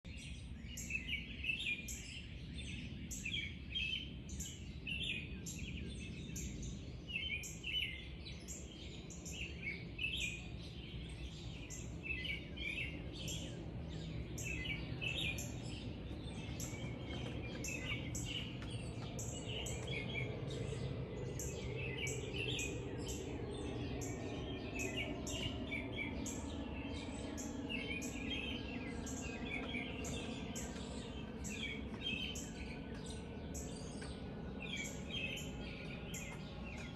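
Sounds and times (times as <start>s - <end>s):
birds chirping and twittering: 0.0s - 36.9s
low background rumble: 10.5s - 36.9s.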